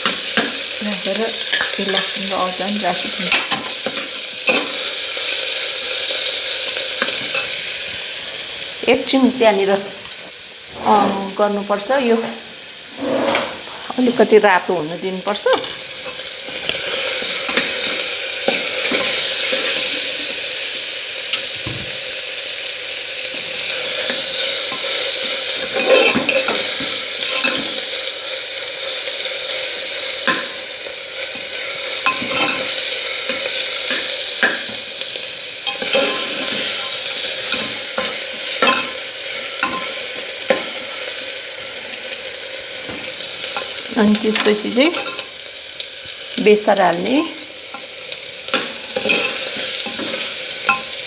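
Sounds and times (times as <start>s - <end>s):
onion sizzling in hot oil: 0.0s - 51.0s
utensil scraping pan: 10.7s - 11.4s, 12.9s - 14.0s, 23.5s - 27.9s.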